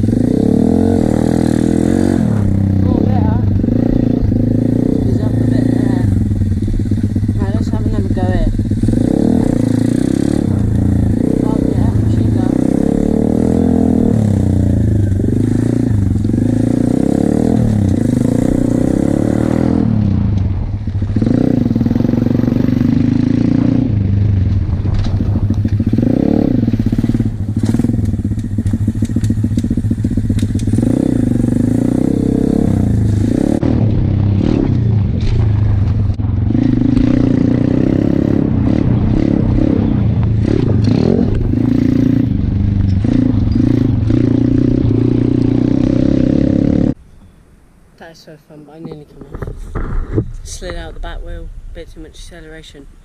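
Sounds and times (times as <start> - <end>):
pit bike engine revving: 0.0 - 47.0
bike clattering over rough ground: 24.4 - 31.0.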